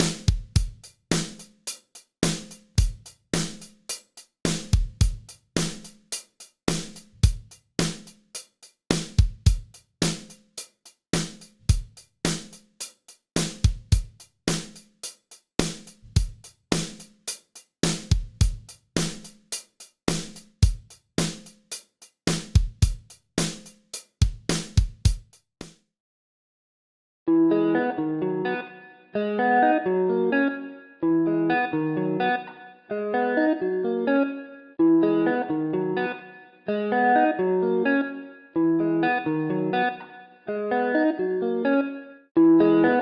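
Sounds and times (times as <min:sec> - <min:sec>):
drum kit groove: 0:00.0 - 0:25.8.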